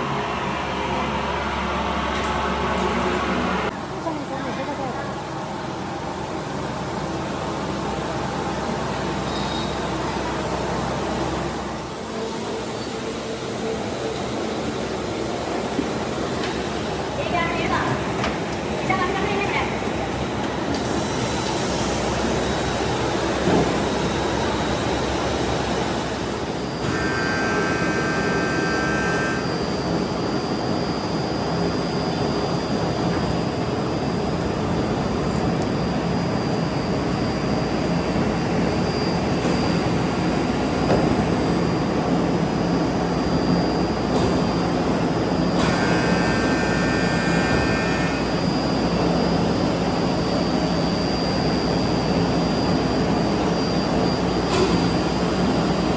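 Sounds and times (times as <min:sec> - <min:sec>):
factory machinery roar with whine: 0:00.0 - 0:55.9
high steady tones: 0:26.4 - 0:40.5.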